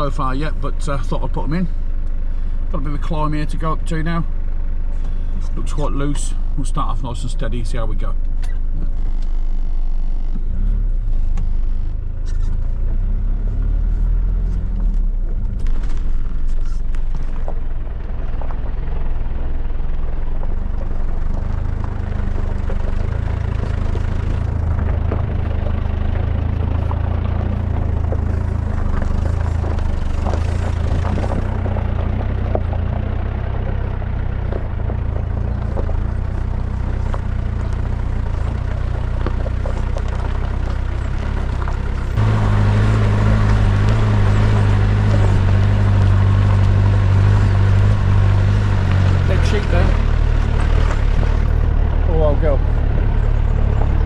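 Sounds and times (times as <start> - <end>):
truck engine pulling uphill: 0.0 - 54.0
truck rattling over stones: 15.4 - 54.0.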